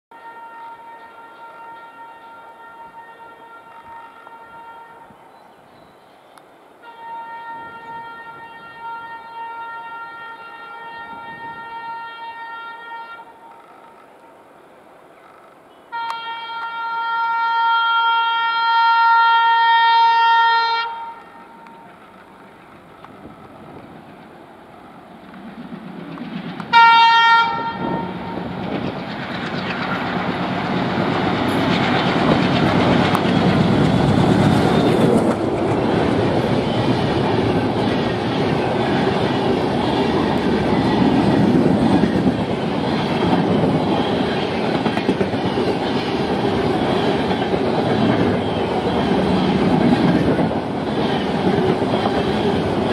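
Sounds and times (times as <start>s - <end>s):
train horn: 0.1s - 5.3s, 6.8s - 13.6s, 15.8s - 22.0s, 26.7s - 28.6s
train passing din: 0.1s - 52.9s
wheels clacking over rail joints: 25.0s - 26.9s, 28.2s - 52.9s.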